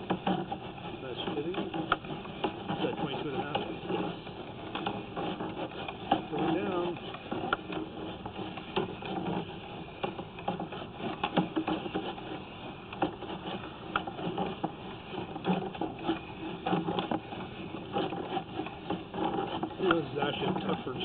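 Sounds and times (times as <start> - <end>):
cable knocking along pipe: 0.0 - 21.0.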